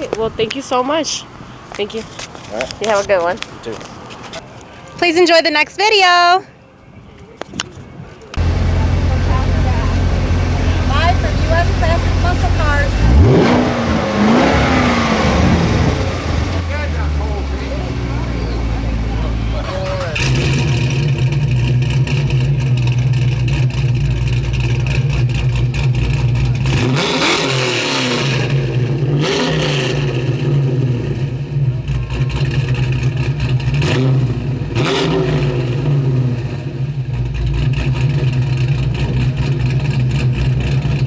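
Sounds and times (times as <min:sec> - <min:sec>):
car engine idling: 0:08.0 - 0:41.0
car engine revving: 0:08.4 - 0:41.0.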